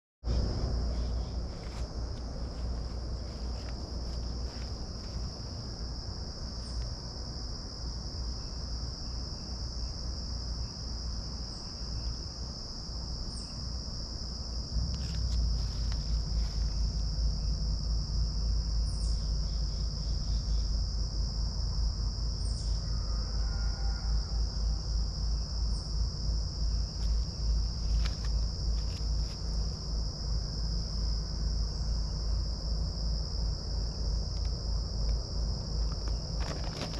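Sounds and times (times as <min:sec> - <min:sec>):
pulsing low rumble: 0:00.2 - 0:07.5, 0:14.4 - 0:22.4
crickets trilling: 0:00.2 - 0:36.9.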